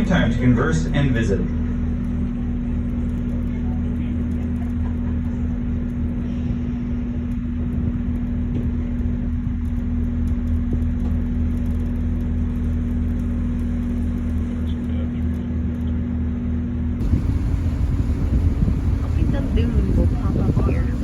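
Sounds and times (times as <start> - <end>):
boat engine hum: 0.0 - 21.0
steady tone: 17.0 - 21.0.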